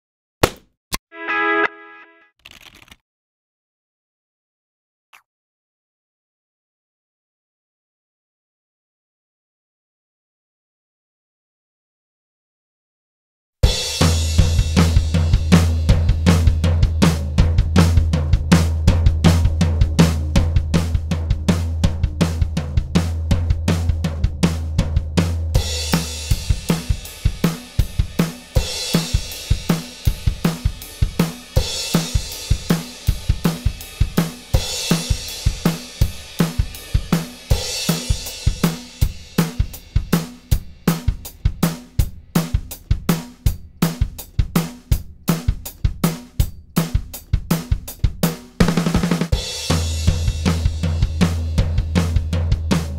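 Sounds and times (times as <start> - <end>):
drum kit groove: 13.6 - 52.9.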